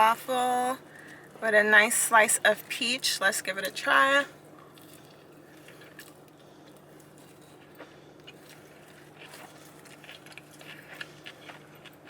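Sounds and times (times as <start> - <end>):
steady low hum: 0.0 - 12.0
person chewing food: 4.4 - 12.0.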